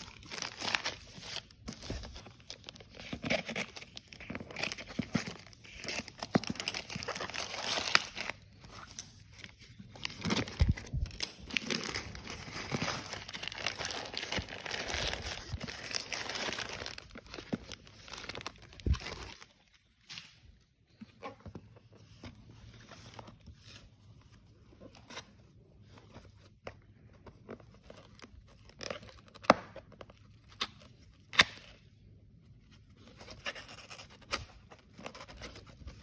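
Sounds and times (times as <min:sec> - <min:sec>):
packaging crinkling: 0:00.0 - 0:20.3.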